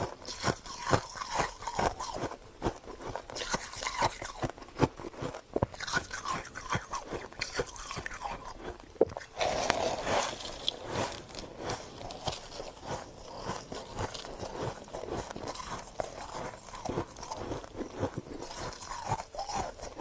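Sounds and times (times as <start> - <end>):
crunchy chewing of frost: 0.0 - 20.0.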